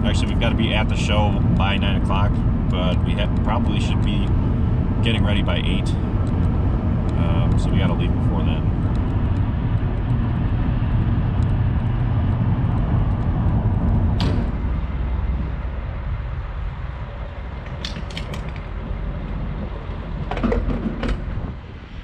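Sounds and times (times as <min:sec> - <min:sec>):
car cabin road rumble: 0:00.0 - 0:22.0
sharp click: 0:14.2 - 0:14.6, 0:17.7 - 0:18.7.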